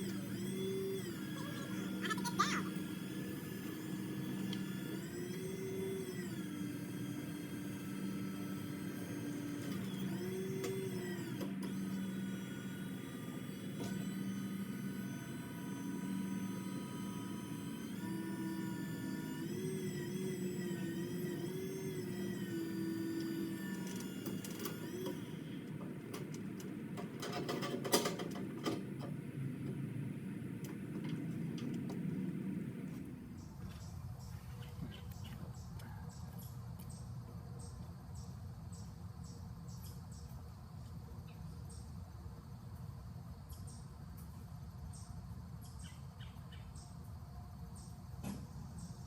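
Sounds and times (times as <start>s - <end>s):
electric motor whining: 0.0s - 33.6s.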